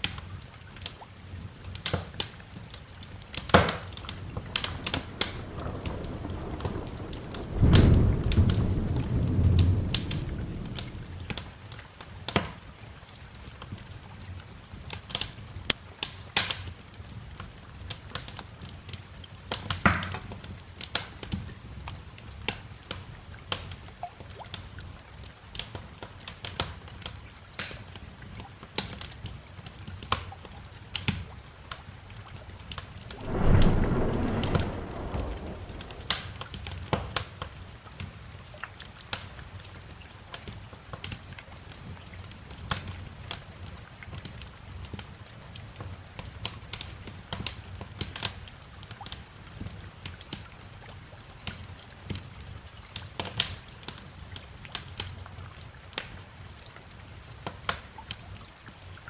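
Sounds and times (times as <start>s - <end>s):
wood fire crackling: 3.3s - 11.5s, 33.1s - 36.9s
rain hissing: 3.4s - 11.5s, 33.1s - 37.0s
thunder rumbling: 3.6s - 11.5s, 33.1s - 36.9s.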